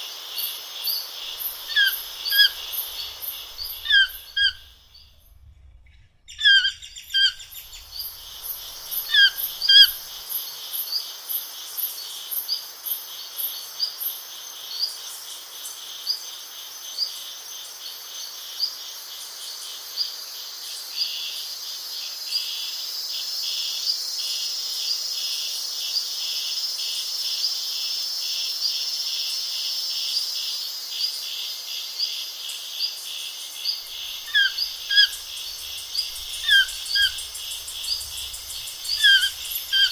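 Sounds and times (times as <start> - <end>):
insect chorus buzzing trill: 0.0 - 39.9
birds chirping: 1.3 - 10.1, 33.8 - 39.9.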